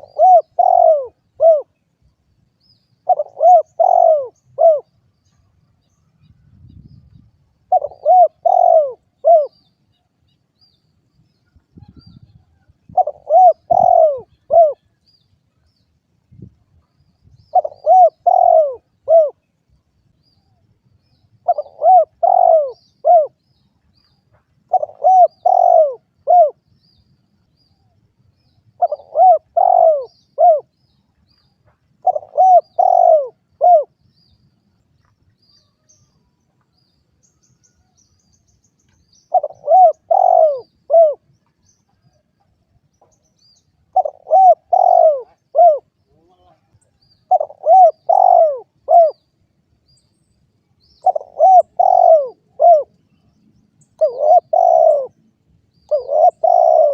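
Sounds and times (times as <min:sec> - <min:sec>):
dove cooing: 0:00.0 - 0:01.8, 0:03.0 - 0:04.9, 0:07.7 - 0:09.7, 0:11.8 - 0:14.9, 0:17.5 - 0:19.4, 0:21.4 - 0:23.4, 0:24.7 - 0:26.6, 0:28.8 - 0:30.7, 0:32.0 - 0:34.0, 0:39.3 - 0:41.3, 0:43.9 - 0:46.7, 0:47.3 - 0:49.2, 0:51.0 - 0:52.9, 0:54.0 - 0:55.2, 0:55.9 - 0:56.9.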